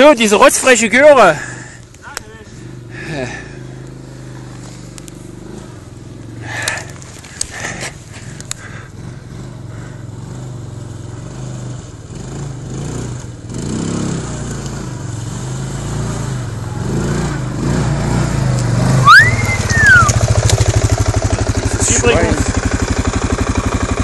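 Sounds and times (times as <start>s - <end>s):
quad bike engine running: 0.0s - 24.0s
short high rising whistle: 19.0s - 20.2s.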